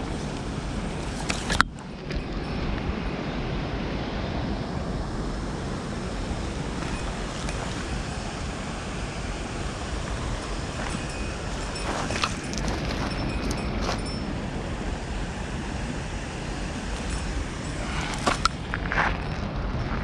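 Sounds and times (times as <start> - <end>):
rushing water: 0.0 - 20.0
wind rumbling on microphone: 0.0 - 20.0.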